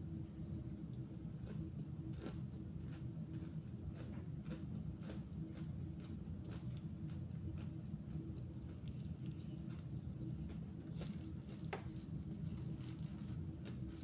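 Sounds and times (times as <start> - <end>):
steady low hum: 0.0 - 14.0
person chewing fried chicken: 0.3 - 14.0.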